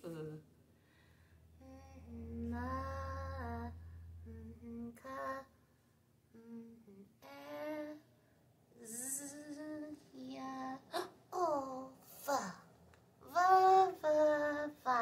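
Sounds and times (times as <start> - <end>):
woman humming: 6.3 - 7.2, 8.8 - 9.9.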